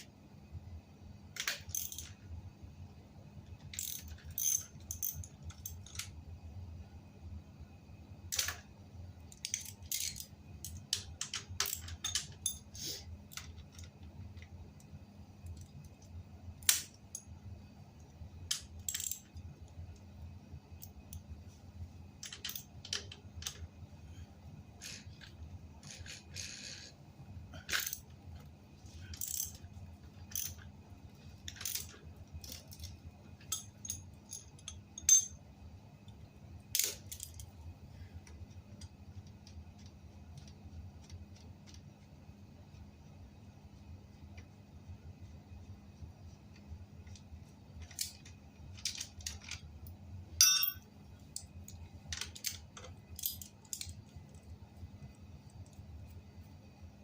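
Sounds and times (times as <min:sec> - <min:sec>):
steady low hum: 0:00.0 - 0:57.0
metallic clicks and clinks: 0:01.4 - 0:02.2, 0:03.6 - 0:06.1, 0:09.3 - 0:12.7, 0:18.5 - 0:19.4, 0:22.2 - 0:23.6, 0:29.1 - 0:29.6, 0:30.2 - 0:30.7, 0:31.4 - 0:35.4, 0:36.7 - 0:37.6, 0:50.4 - 0:54.5.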